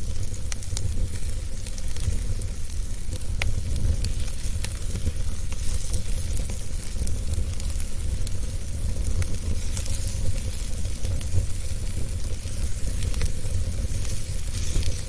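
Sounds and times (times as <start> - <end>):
fire crackles and pops: 0.0 - 15.0
fire rumble and hiss: 0.0 - 15.0.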